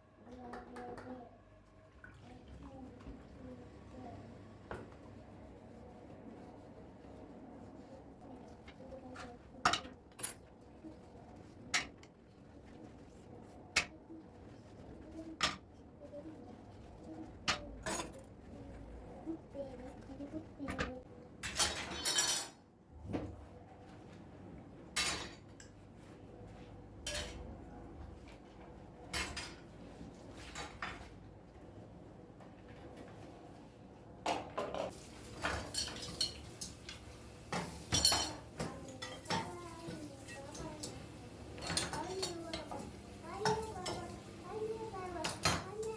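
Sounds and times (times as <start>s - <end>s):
dishes and cutlery clattering: 20.8s - 22.6s, 25.0s - 25.8s, 27.0s - 27.5s, 34.3s - 44.2s, 45.2s - 45.9s
household items clinking and knocking: 34.3s - 45.9s.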